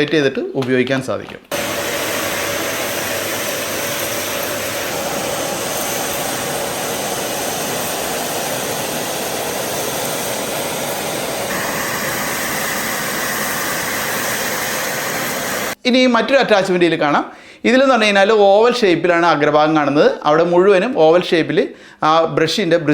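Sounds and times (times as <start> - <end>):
vacuum cleaner running: 1.5 - 15.8.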